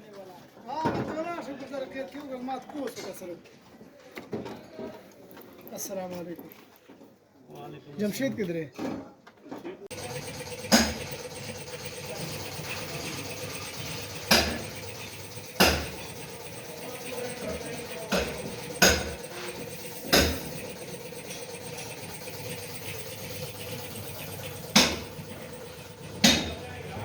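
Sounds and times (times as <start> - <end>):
steady low hum: 9.9 - 27.0.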